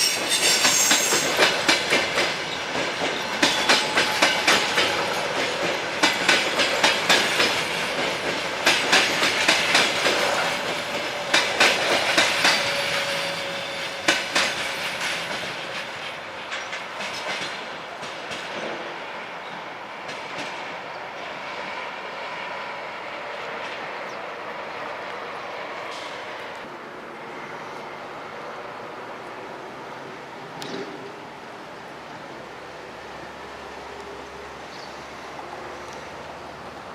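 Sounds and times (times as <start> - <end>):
train wheels clacking over rail joints: 0.0 - 21.8.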